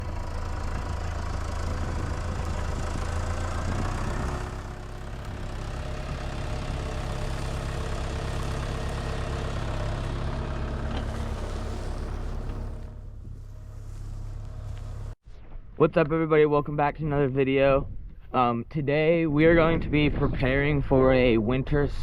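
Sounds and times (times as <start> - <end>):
tractor engine running: 0.0 - 15.2.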